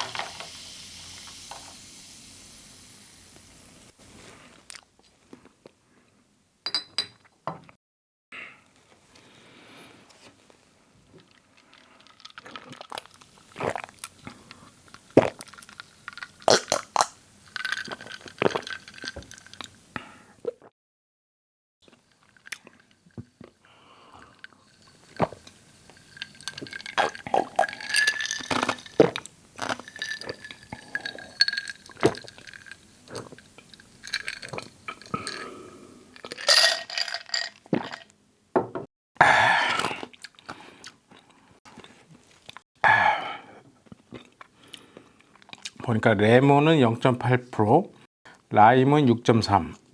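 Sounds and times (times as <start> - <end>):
sipping and swallowing: 11.3 - 19.8, 21.9 - 36.6.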